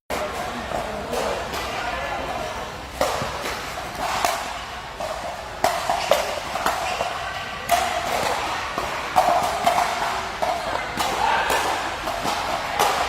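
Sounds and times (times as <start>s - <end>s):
ball strikes and bounces: 2.9s - 13.0s.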